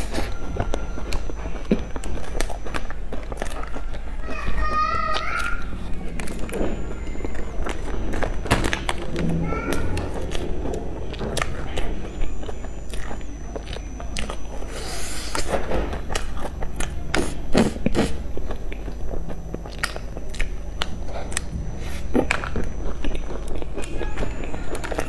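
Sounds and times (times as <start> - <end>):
person chewing crunchy buns: 0.0 - 25.0.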